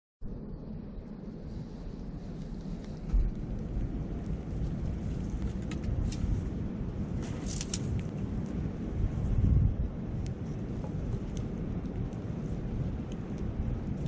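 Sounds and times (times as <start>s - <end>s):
wind rumble on microphone: 0.2s - 14.0s
campfire crackling and popping: 2.5s - 9.2s, 10.0s - 14.0s.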